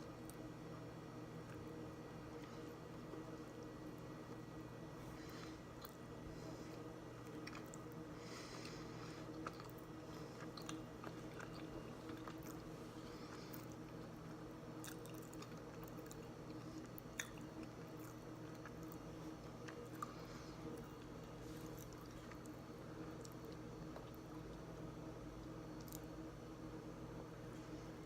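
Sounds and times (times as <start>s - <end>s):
faint steady hum: 0.0s - 28.0s
person chewing: 6.8s - 24.3s.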